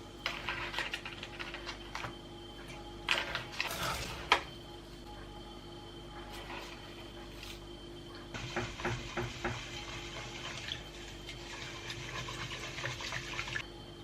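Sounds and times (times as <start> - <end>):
water filling a container: 8.4 - 13.6.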